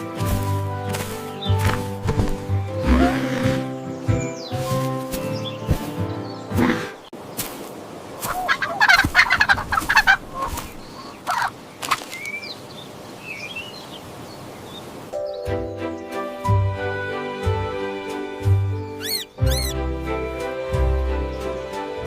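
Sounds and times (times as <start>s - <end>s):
music: 0.0s - 7.1s, 15.1s - 22.0s
turkey gobbling: 8.2s - 11.5s.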